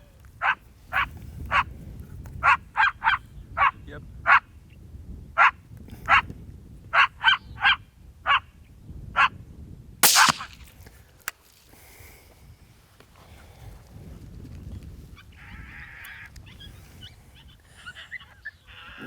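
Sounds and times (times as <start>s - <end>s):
rifle shot: 10.0s - 10.7s
sharp click: 10.0s - 10.7s.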